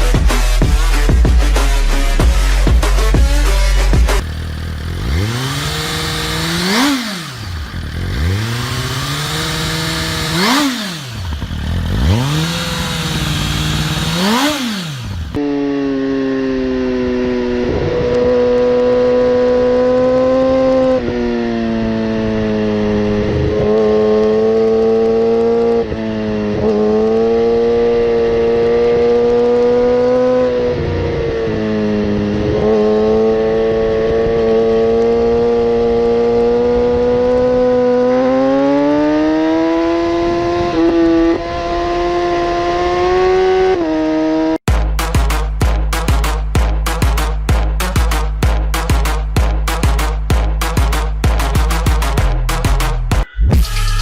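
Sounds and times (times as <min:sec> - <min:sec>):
motorcycle engine revving: 0:00.0 - 0:54.0
motorcycle engine held at high note: 0:01.9 - 0:19.0.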